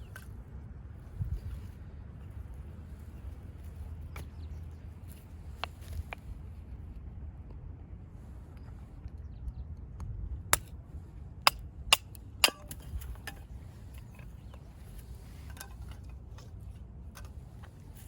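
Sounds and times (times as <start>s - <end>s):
small clicks and knocks of wood: 11.9s - 18.0s.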